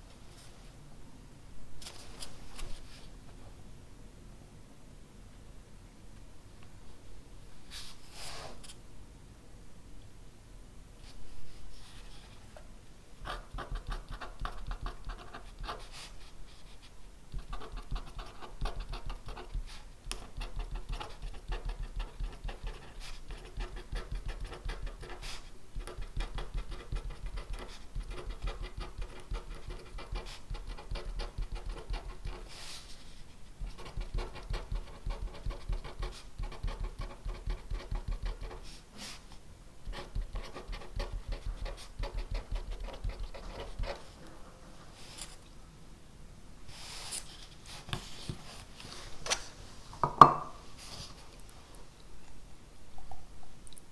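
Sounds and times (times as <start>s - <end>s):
pen scratching on paper: 13.2s - 16.2s, 17.3s - 32.8s, 33.6s - 38.8s, 39.9s - 44.3s.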